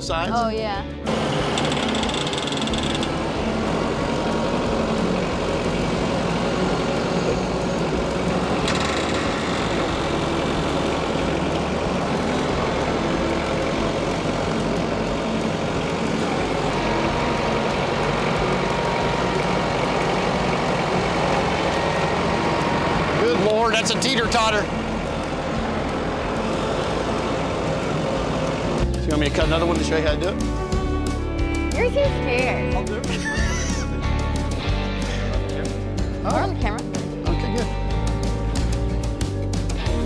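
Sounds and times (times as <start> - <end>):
chainsaw cutting log: 1.1 - 28.8.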